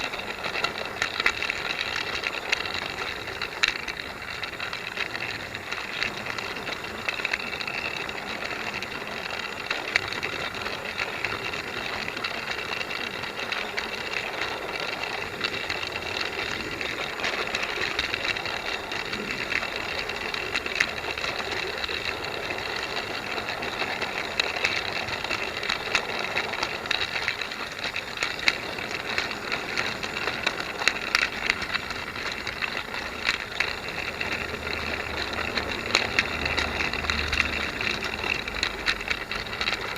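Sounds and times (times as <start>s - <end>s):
rattling irregular clicking: 0.0s - 39.9s
toy train motor whirring: 0.0s - 39.9s.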